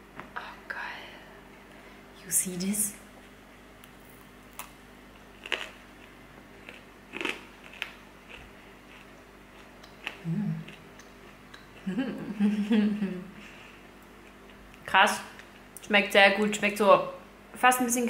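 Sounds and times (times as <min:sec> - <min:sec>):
cookie crunching: 0:03.8 - 0:11.9
person humming: 0:10.2 - 0:10.8, 0:11.8 - 0:13.4.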